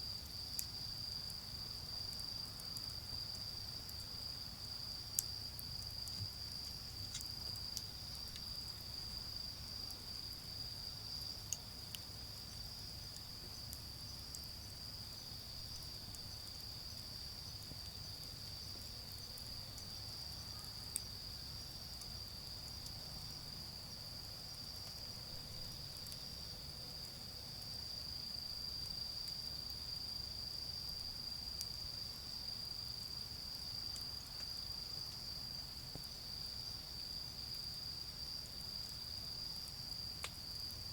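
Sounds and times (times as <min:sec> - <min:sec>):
crickets trilling: 0:00.0 - 0:40.9
charcoal fire popping: 0:04.9 - 0:10.6.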